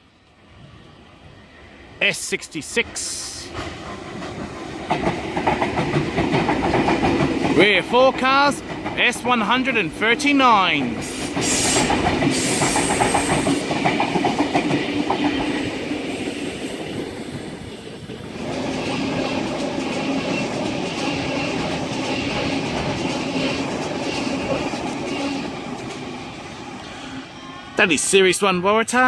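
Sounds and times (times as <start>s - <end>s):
electric train humming: 0.1s - 27.8s
train wheels clattering over rail joints: 3.5s - 7.6s, 10.9s - 15.6s.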